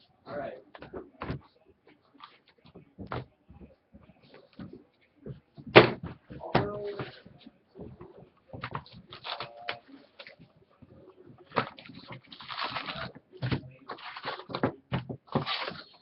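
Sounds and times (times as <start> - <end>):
foil wrappers crinkling: 9.1 - 10.4, 11.5 - 13.1, 13.9 - 14.6.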